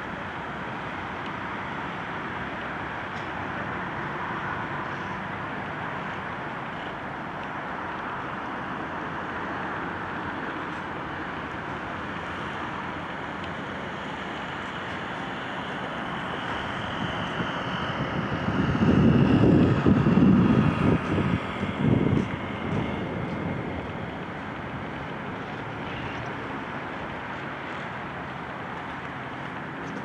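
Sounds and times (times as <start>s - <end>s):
street noise: 0.0s - 30.0s
low rumble passing close by: 14.4s - 30.0s.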